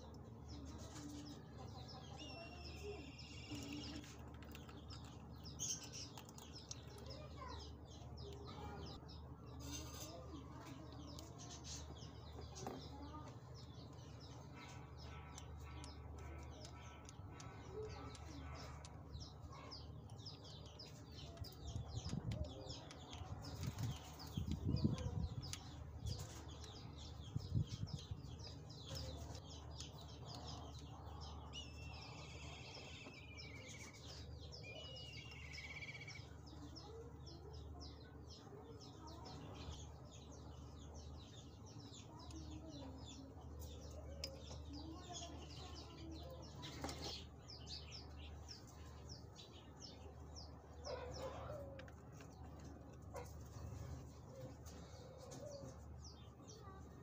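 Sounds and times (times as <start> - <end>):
small birds chirping: 0.0 - 57.0
bird warbling song: 11.0 - 52.5.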